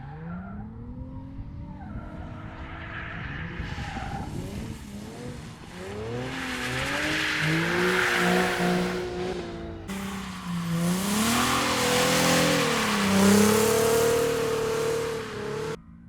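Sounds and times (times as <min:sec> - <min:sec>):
car engine revving: 0:02.1 - 0:15.8
tyres hissing and sliding: 0:04.7 - 0:15.8.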